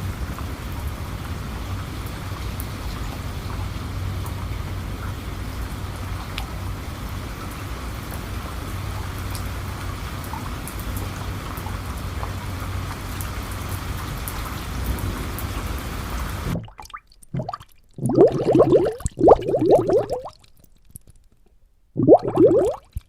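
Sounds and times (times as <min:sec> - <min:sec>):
steady rain falling: 0:00.0 - 0:16.6
sharp raindrop ticks: 0:01.9 - 0:15.8, 0:16.5 - 0:23.0.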